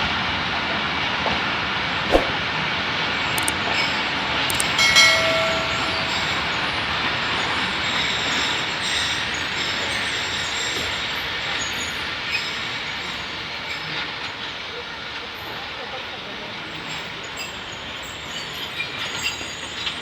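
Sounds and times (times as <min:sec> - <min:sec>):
train wheels rumbling on rails: 0:00.0 - 0:20.0
brief pitched tone: 0:04.8 - 0:06.9.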